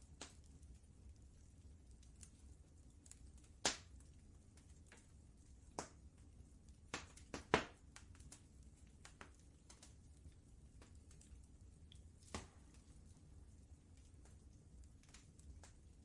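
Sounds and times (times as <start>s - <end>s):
low steady rumble: 0.0s - 16.0s
wood fire crackling: 0.0s - 16.0s.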